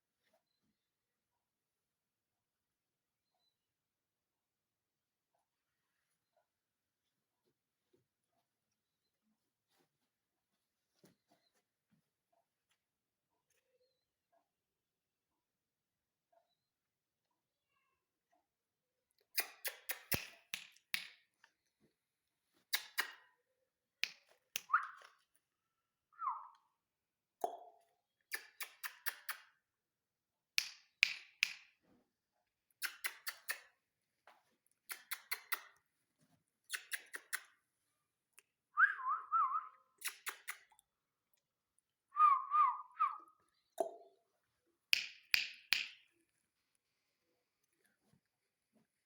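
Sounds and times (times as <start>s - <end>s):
quick sharp clicks: 19.4s - 21.0s, 32.8s - 33.7s, 40.0s - 40.8s
parrot warbling whistles: 42.2s - 43.3s.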